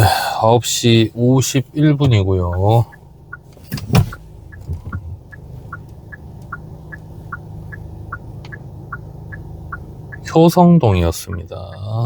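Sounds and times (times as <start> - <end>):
car cabin hum: 0.0 - 12.0
turn signal ticking: 0.0 - 12.0.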